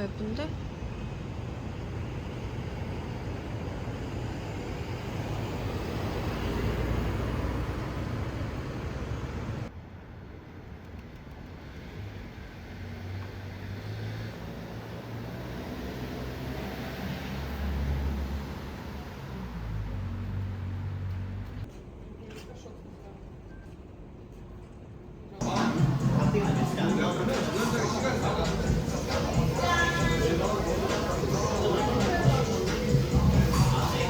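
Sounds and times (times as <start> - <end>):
low rumbling background noise: 0.0 - 10.8, 18.7 - 34.0.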